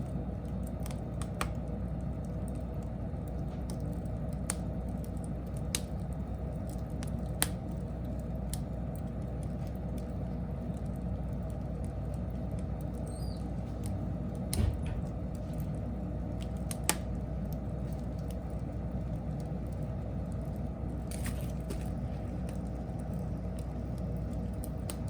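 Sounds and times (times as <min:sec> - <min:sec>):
fire crackles: 0:00.0 - 0:25.0
wood fire rumbling: 0:00.0 - 0:25.0
dull thump: 0:14.5 - 0:15.2.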